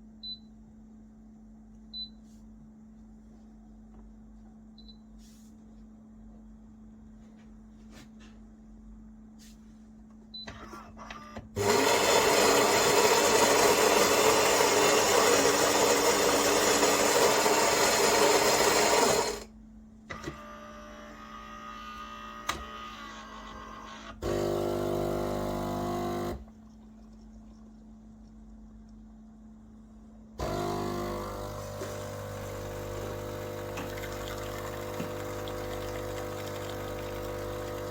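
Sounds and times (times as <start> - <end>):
coffee grinder motor: 11.6 - 19.5, 22.2 - 26.4, 30.4 - 37.9
pump buzz: 11.6 - 19.5, 20.1 - 26.5, 30.4 - 37.9.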